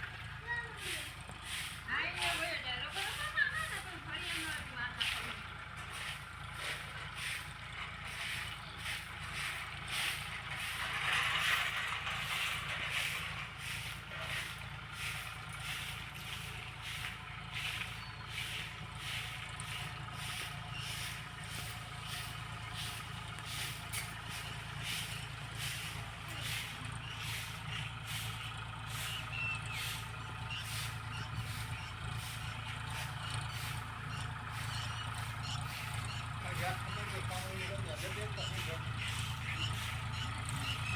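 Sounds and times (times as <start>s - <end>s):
tractor engine running: 0.0s - 40.9s
sprayer hiss: 12.5s - 40.9s.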